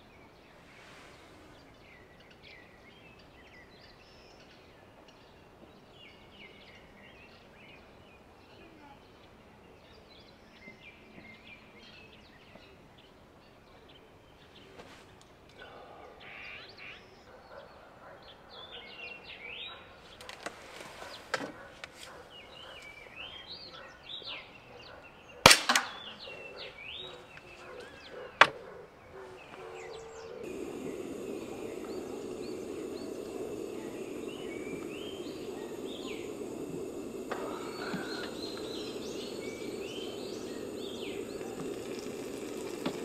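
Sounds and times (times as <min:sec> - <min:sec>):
small birds chirping: 0:29.3 - 0:43.0
low rushing noise: 0:30.5 - 0:43.0.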